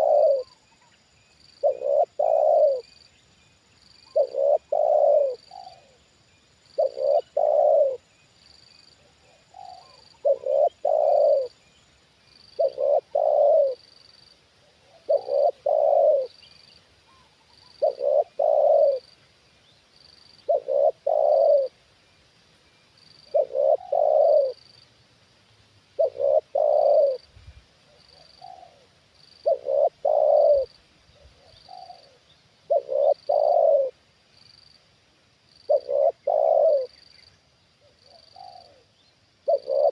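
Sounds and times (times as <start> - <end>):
dove cooing: 0.0 - 0.6, 1.6 - 3.0, 4.0 - 6.0, 6.8 - 8.1, 9.0 - 11.6, 12.6 - 13.9, 14.6 - 16.4, 17.1 - 19.1, 20.4 - 21.8, 23.2 - 24.7, 26.0 - 27.3, 27.9 - 34.0, 35.6 - 37.0, 37.8 - 39.9.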